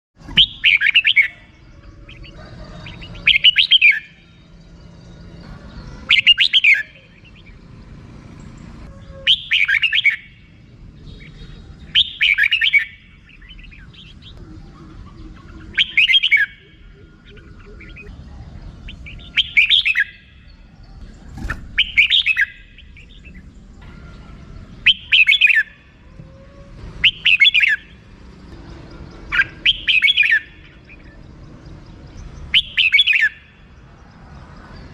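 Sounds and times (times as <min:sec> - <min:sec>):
bird chattering call: 0:00.4 - 0:04.2, 0:08.8 - 0:10.4, 0:11.2 - 0:18.1, 0:21.4 - 0:23.5, 0:24.2 - 0:25.7, 0:29.3 - 0:31.2.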